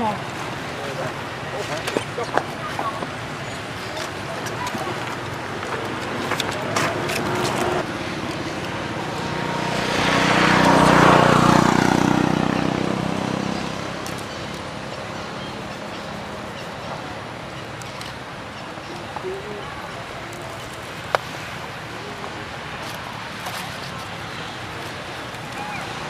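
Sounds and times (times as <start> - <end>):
vehicle passing by: 0.0 - 17.2
steady background noise: 0.0 - 26.0.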